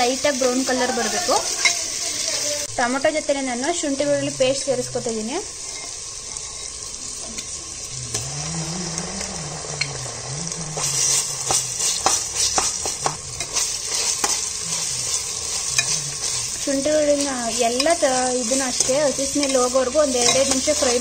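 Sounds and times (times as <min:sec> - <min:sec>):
onions sizzling in hot oil: 0:00.0 - 0:21.0
metal spoon scraping a pot: 0:05.6 - 0:07.0, 0:10.8 - 0:21.0.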